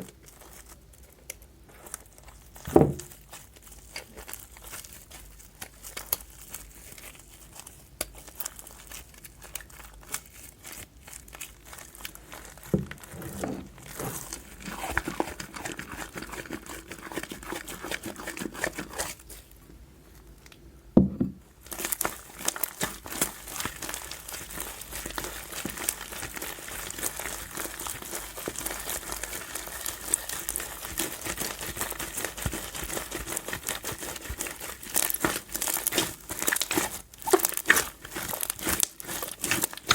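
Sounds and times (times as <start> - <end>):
slime crackling and popping: 0.0 - 13.1, 21.6 - 39.9
dull thump: 21.0 - 21.4.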